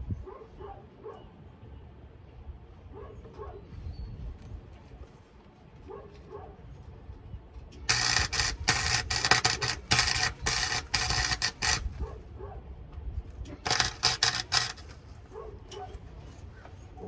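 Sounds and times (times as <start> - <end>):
welding arc crackling: 7.9 - 12.0, 13.7 - 15.0.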